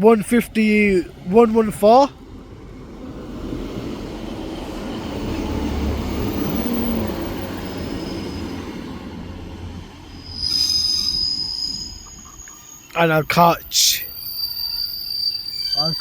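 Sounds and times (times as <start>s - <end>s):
train rolling with low rumble: 0.0s - 16.0s
high-pitched brake squeal: 6.0s - 8.7s, 10.2s - 16.0s.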